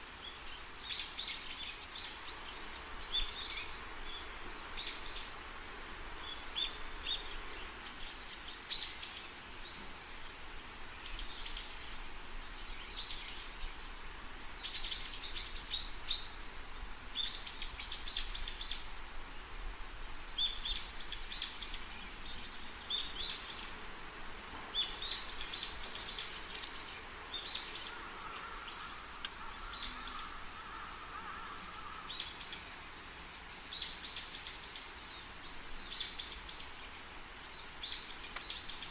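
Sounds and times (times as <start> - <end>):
birds chirping: 20.4 - 38.9.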